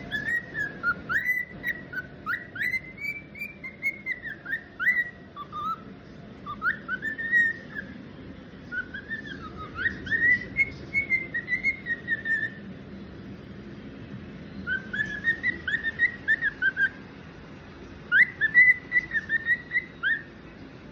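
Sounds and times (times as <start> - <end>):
cockatiel whistling: 0.0 - 5.8, 6.4 - 8.0, 8.6 - 12.6, 14.6 - 17.0, 18.1 - 20.3.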